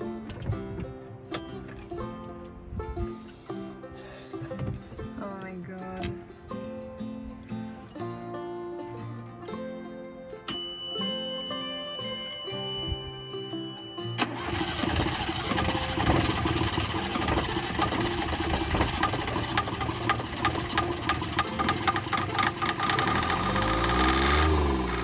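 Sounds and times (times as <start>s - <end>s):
plucked-string music: 0.0s - 25.0s
marine diesel engine running: 14.1s - 25.0s
rapid uneven ticking clatter: 14.4s - 24.0s.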